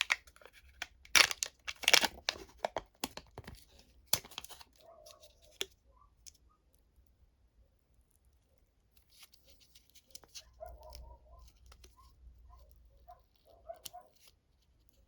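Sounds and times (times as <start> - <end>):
candy wrapper crinkling: 0.0 - 5.7.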